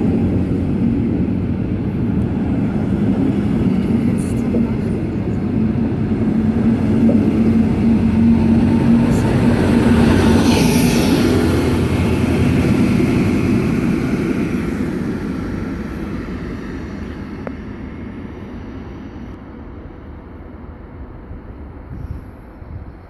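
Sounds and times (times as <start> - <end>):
diesel train rumble and rail noise: 0.0 - 23.0.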